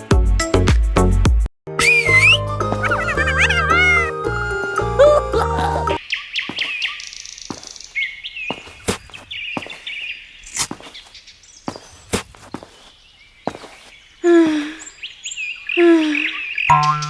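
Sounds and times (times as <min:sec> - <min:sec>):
small birds chirping: 0:06.0 - 0:17.0.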